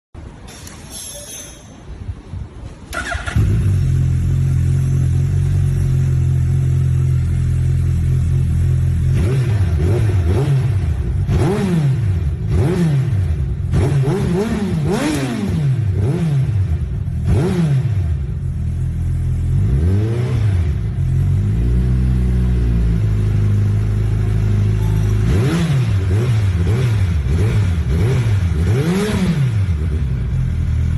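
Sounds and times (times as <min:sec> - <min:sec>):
motorcycle engine revving: 0:02.9 - 0:30.9
motorcycle engine starting: 0:02.9 - 0:30.9
motorcycle engine idling: 0:03.0 - 0:09.8, 0:20.8 - 0:25.3.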